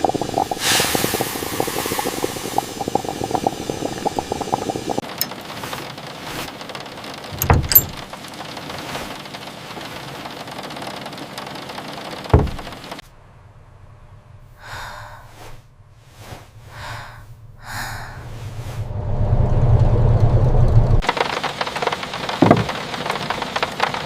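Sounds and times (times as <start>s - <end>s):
short hissing sounds: 0.0s - 5.0s
rain hiss: 0.0s - 6.5s
dull low thump: 12.4s - 12.7s
low rumble: 13.1s - 21.0s.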